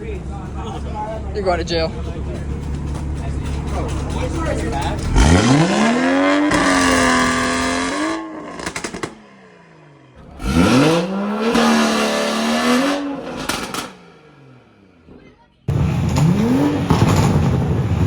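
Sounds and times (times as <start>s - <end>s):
car engine revving hard: 4.8s - 9.6s, 10.2s - 18.0s.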